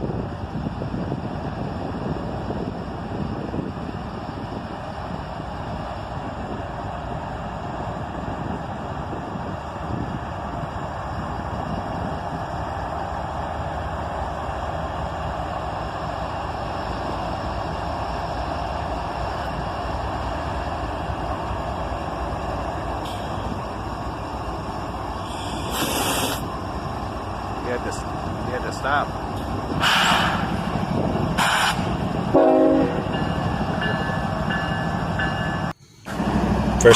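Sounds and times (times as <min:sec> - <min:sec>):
freight train rumbling past: 0:00.0 - 0:36.9.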